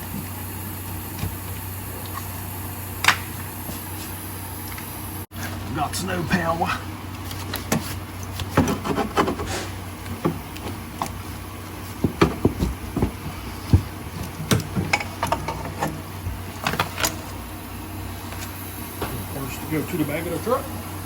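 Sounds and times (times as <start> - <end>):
hand tools and metal clinking: 7.2 - 17.4.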